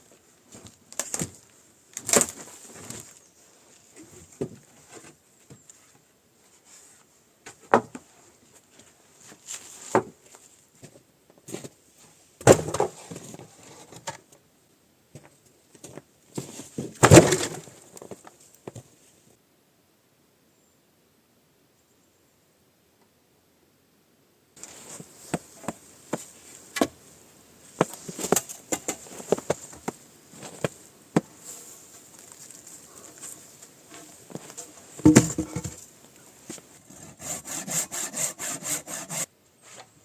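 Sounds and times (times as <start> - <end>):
faint steady hiss: 0.0 - 40.0
objects knocking and clattering: 35.0 - 35.8.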